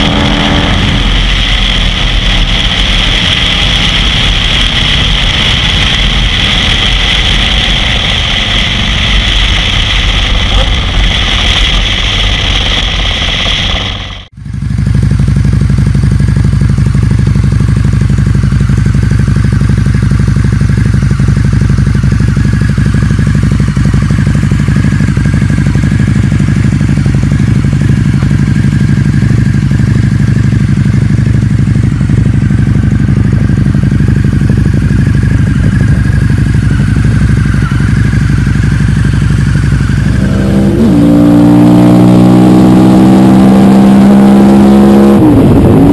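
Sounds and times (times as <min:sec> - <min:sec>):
motorcycle engine running steadily: 0:00.0 - 0:45.9.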